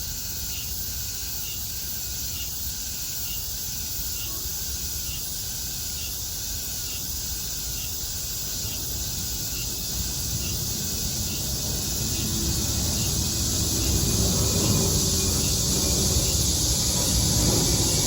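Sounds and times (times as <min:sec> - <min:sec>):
cicadas chorus: 0:00.0 - 0:18.0
airplane rumble: 0:09.0 - 0:18.0.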